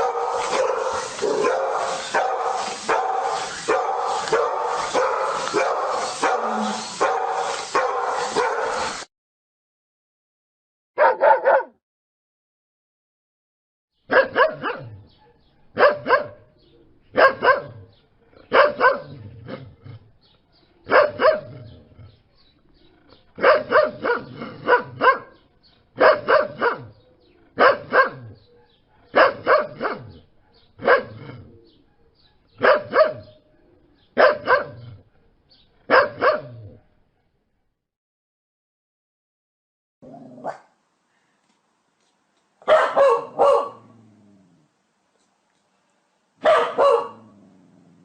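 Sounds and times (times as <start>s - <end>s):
dog barking: 0.0s - 9.1s, 11.0s - 11.8s, 14.1s - 16.5s, 17.2s - 17.9s, 18.5s - 19.2s, 20.9s - 21.6s, 23.4s - 25.4s, 26.0s - 26.9s, 27.6s - 31.2s, 32.6s - 33.4s, 34.2s - 34.9s, 35.9s - 36.6s, 40.4s - 40.8s, 42.6s - 43.9s, 46.4s - 47.4s.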